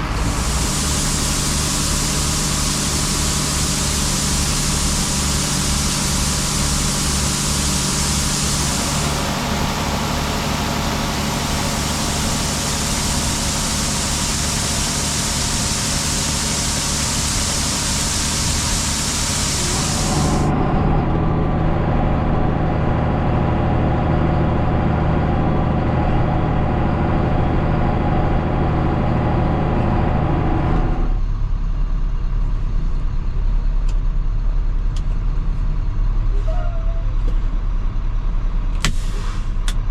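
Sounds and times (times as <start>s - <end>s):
loud hiss: 0.0s - 20.5s, 38.8s - 39.6s
diesel farm machinery running: 0.0s - 39.9s.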